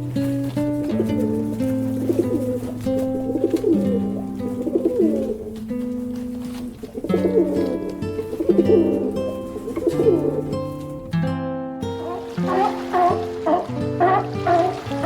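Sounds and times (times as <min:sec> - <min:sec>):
background music with held notes: 0:00.0 - 0:15.0
bird's low bending calls: 0:12.0 - 0:15.0.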